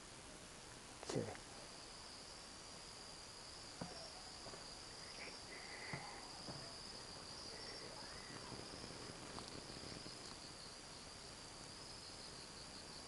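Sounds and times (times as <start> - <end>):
crickets chirring: 1.0 - 13.0.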